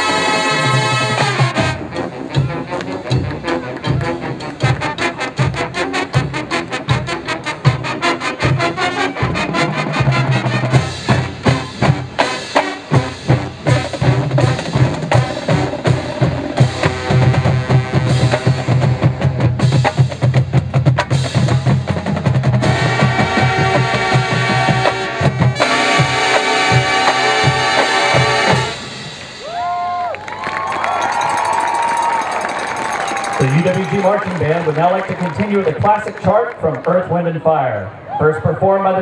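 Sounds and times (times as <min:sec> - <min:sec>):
band playing held chords: 0:00.0 - 0:30.1, 0:30.9 - 0:37.9
marching drumline playing: 0:00.0 - 0:36.4.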